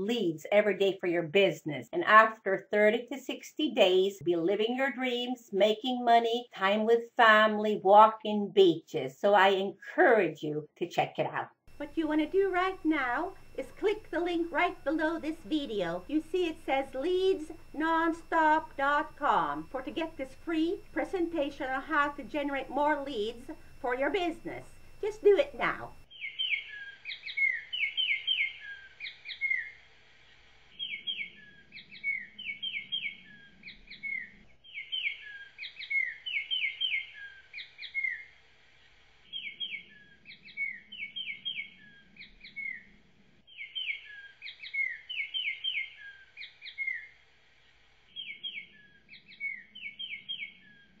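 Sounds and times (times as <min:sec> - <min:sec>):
small birds chirping: 0:11.7 - 0:29.8, 0:30.7 - 0:38.3, 0:39.2 - 0:47.2, 0:48.1 - 0:51.0.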